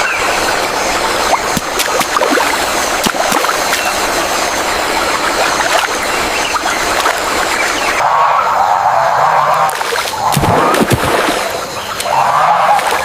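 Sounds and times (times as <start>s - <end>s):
rushing river water: 0.0s - 13.0s
sharp splashes and clicks: 1.2s - 8.0s, 9.7s - 13.0s.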